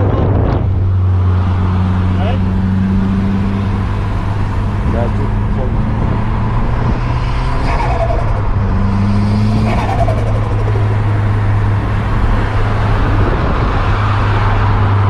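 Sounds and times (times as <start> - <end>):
car engine droning: 0.0 - 15.0.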